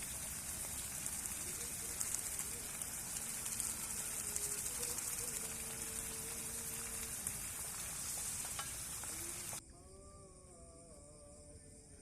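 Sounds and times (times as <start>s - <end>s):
fish frying in hot oil: 0.0s - 9.6s.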